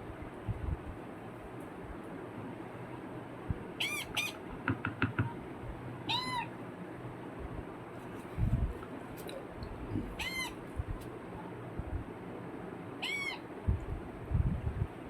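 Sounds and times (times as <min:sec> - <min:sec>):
parakeet chicks squealing: 0:03.8 - 0:04.4, 0:06.1 - 0:06.5, 0:10.1 - 0:10.6, 0:13.0 - 0:13.5.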